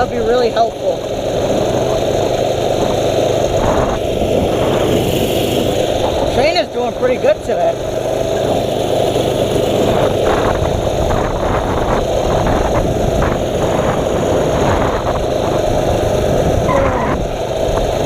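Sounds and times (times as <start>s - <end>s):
small engine running: 0.0s - 18.0s
wind buffeting microphone: 0.0s - 18.0s.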